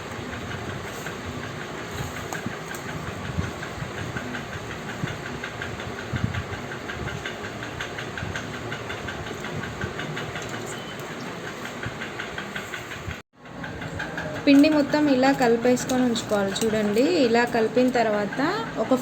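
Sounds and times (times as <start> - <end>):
machine whirr: 0.0 - 19.0
fast even ticking: 0.2 - 19.0.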